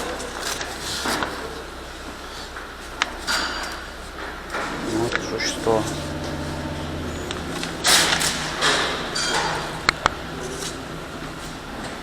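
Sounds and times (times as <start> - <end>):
low workshop hum: 4.6 - 10.5.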